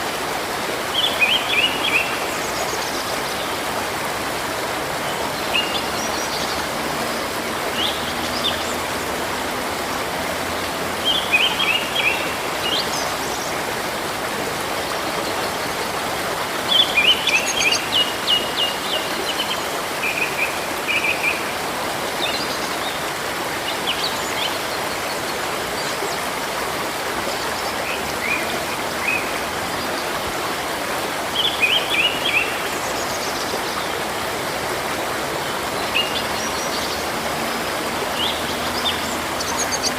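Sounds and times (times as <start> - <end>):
flowing river water: 0.0 - 39.9
birds chirping: 27.2 - 39.9.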